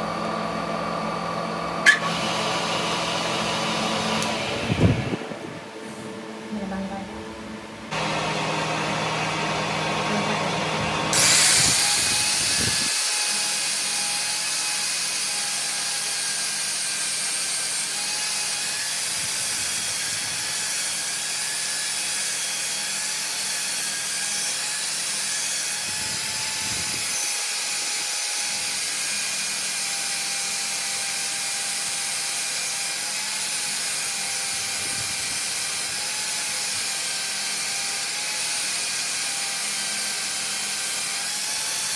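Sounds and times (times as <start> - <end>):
power tool on metal: 0.0 - 5.2, 7.9 - 41.9
low motor hum: 0.0 - 12.9.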